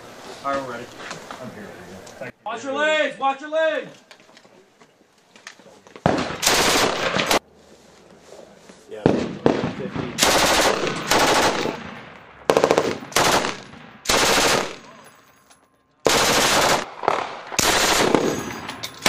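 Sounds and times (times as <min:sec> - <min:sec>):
machine gun bursts with echo: 0:06.1 - 0:07.4, 0:09.5 - 0:15.0, 0:16.0 - 0:18.7.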